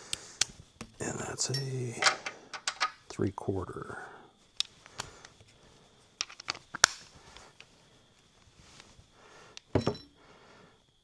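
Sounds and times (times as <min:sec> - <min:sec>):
faint high whine: 0:01.0 - 0:04.4, 0:09.8 - 0:10.7
hand tools and metal parts clicking: 0:01.5 - 0:03.1.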